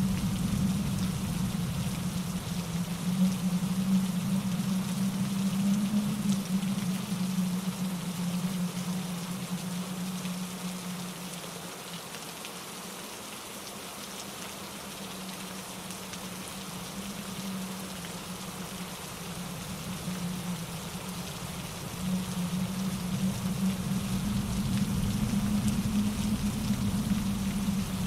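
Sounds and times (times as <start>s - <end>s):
deep rumble: 0.0s - 9.7s, 17.0s - 28.0s
rain falling through trees: 0.0s - 28.0s
stream rushing over rocks: 0.0s - 28.0s
wind in branches: 0.0s - 28.0s.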